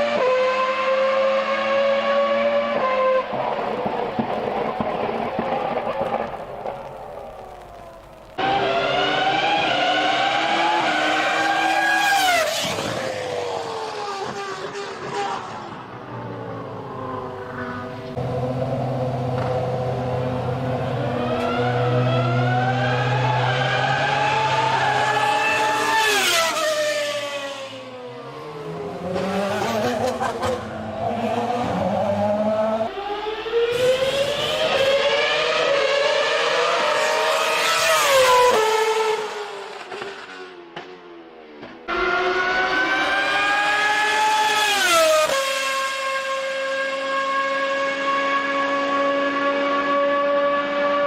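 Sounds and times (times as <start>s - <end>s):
engine crackles: 3.3s - 8.9s
race car engine screaming: 8.4s - 15.8s, 20.9s - 27.0s
racing car engine passing by: 8.4s - 40.5s.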